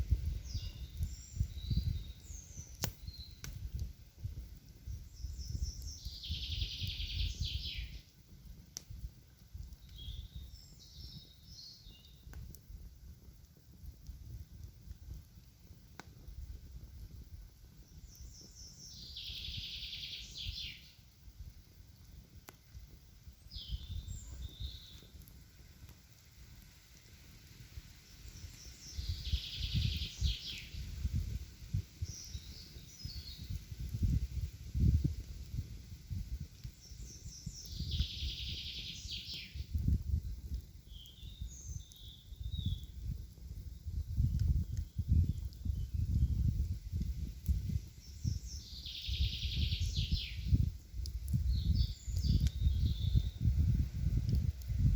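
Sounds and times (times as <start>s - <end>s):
songbird singing: 0.3s - 3.5s, 4.9s - 8.1s, 9.8s - 12.3s, 17.8s - 21.0s, 23.4s - 25.2s, 28.1s - 31.4s, 32.0s - 34.2s, 36.6s - 43.1s, 47.5s - 53.8s.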